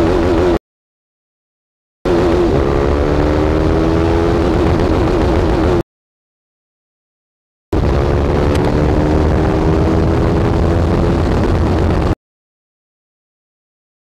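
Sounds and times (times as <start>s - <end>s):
motorcycle engine at full throttle: 0.0s - 0.6s, 2.1s - 5.8s, 7.8s - 12.2s
heavy wind rush: 2.1s - 5.8s, 7.8s - 12.2s.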